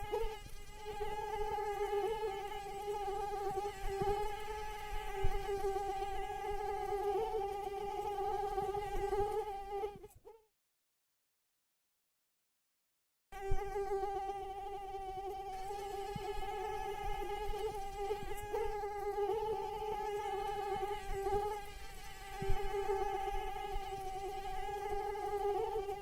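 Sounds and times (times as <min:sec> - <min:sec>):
mosquito wing whine: 0:00.0 - 0:10.4, 0:13.4 - 0:26.0.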